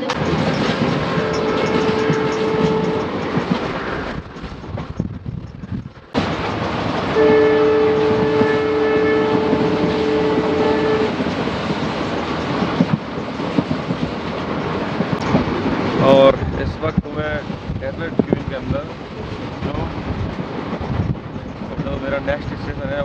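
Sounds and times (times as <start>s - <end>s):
train wheel and wind noise: 0.0s - 23.0s
locomotive horn: 0.9s - 3.2s, 7.1s - 11.2s.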